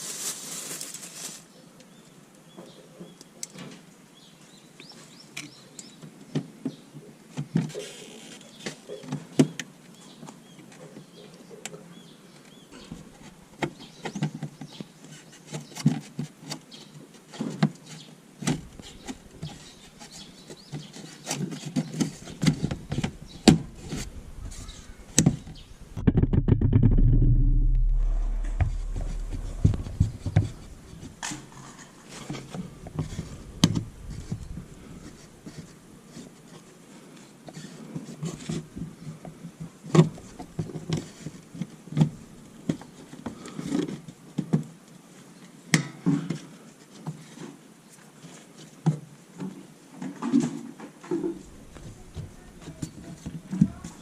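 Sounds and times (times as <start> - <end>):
irregular clicks and knocks: 21.8 - 35.7
low rumble: 22.8 - 31.3, 32.8 - 35.4.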